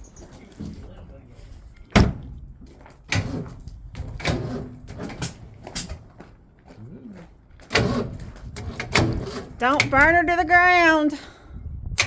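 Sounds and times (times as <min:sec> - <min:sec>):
car engine cranking and sputtering: 0:07.4 - 0:10.4.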